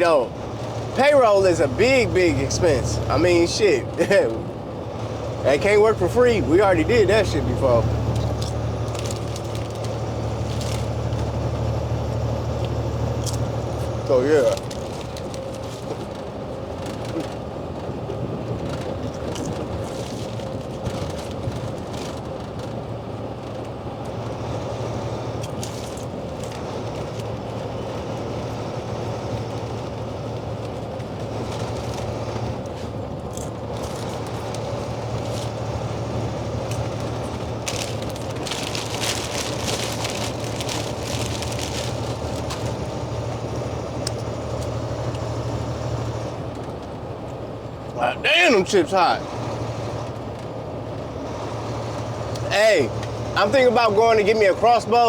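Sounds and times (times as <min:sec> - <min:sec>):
truck engine and road drone: 0:00.0 - 0:55.0
chips being crunched: 0:08.2 - 0:11.0, 0:36.6 - 0:42.9
chip bag crinkling: 0:08.2 - 0:11.2, 0:33.8 - 0:35.6, 0:36.6 - 0:43.0.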